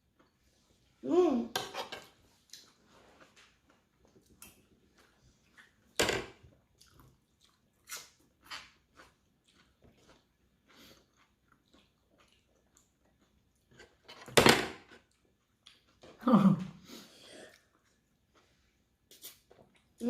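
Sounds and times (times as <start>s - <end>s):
cutlery and dishes clinking: 1.6s - 2.2s.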